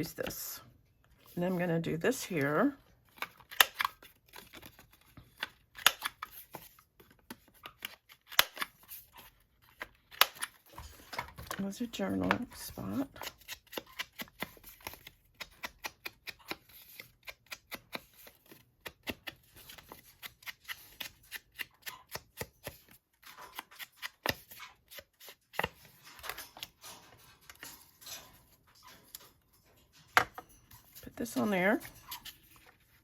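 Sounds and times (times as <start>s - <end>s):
paper cards rustling: 1.1s - 26.8s.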